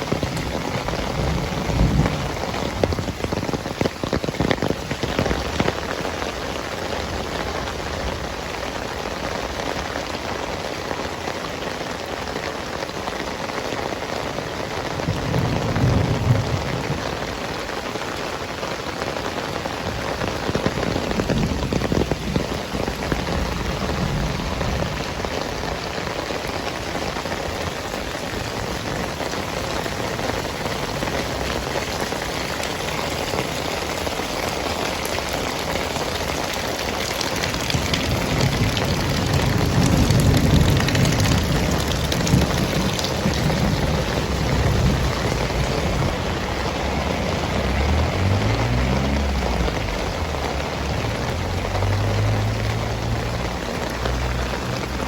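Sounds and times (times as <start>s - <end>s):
low rumbles: 0.0s - 3.9s, 19.9s - 55.0s
heavy rain falling: 0.0s - 55.0s.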